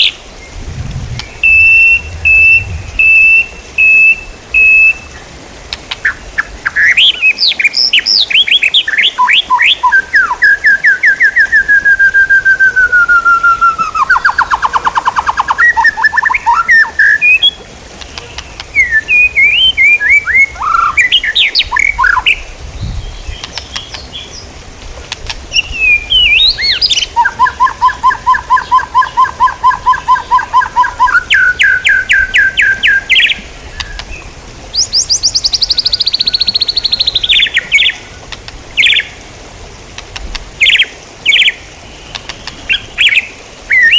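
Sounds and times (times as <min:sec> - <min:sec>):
songbird trilling and chirping: 0:00.0 - 0:05.0, 0:25.6 - 0:38.0.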